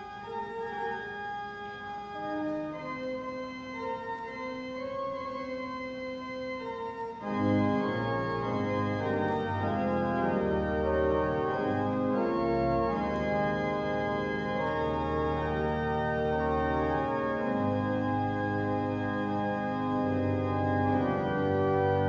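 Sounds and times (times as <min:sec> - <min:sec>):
church organ chords: 0:00.0 - 0:22.0.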